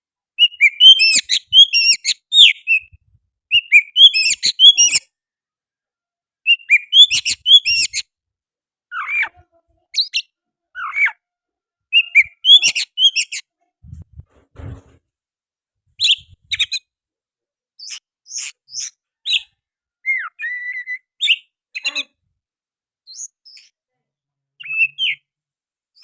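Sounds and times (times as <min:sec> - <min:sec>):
bird singing whistled phrases: 0:00.4 - 0:05.0, 0:06.5 - 0:08.0, 0:11.9 - 0:13.4, 0:16.0 - 0:16.8, 0:17.8 - 0:21.5, 0:23.1 - 0:23.7, 0:24.6 - 0:25.2.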